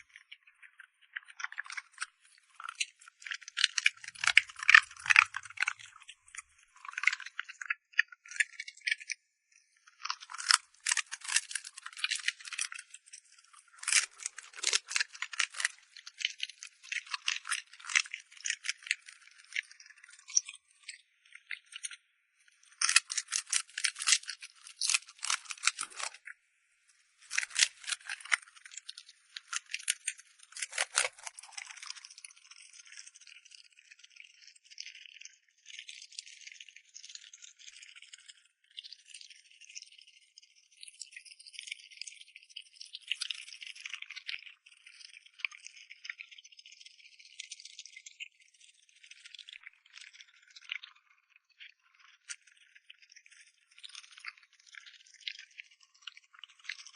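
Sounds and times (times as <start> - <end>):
dog eating from a bowl: 0.6 - 8.0.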